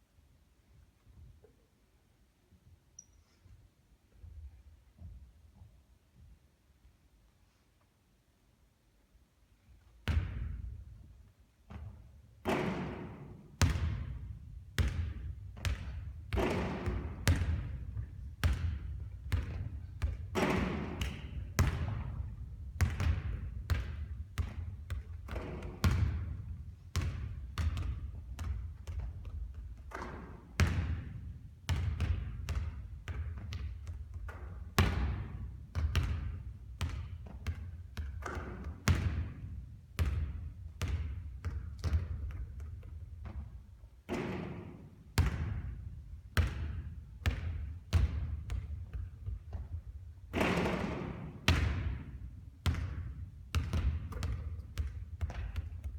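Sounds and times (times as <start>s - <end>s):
basketballs bouncing on hard court: 10.0s - 11.0s, 11.7s - 55.9s.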